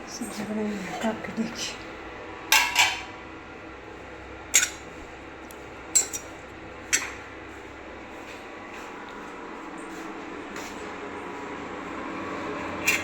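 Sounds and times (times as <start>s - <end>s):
kitchen utensils clinking: 2.5s - 3.2s, 4.6s - 4.8s, 6.0s - 6.3s.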